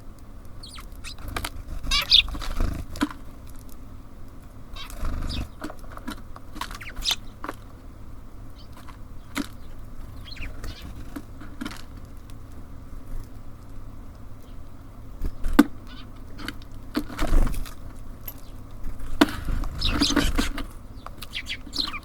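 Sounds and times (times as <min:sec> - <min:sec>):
high bird chirps: 0:00.6 - 0:02.8, 0:04.8 - 0:05.6, 0:06.7 - 0:07.4, 0:08.5 - 0:11.1, 0:15.3 - 0:16.4, 0:19.7 - 0:22.0
bird wings flapping: 0:00.8 - 0:03.4, 0:04.8 - 0:07.6, 0:18.8 - 0:20.8.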